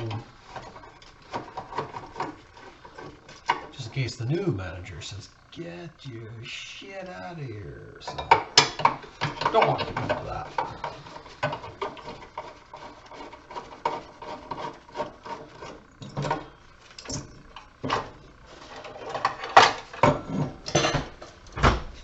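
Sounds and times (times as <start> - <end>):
objects knocking and clicking: 0.0 - 4.0, 8.1 - 21.4
scraping and rubbing: 0.0 - 5.2, 7.1 - 20.6.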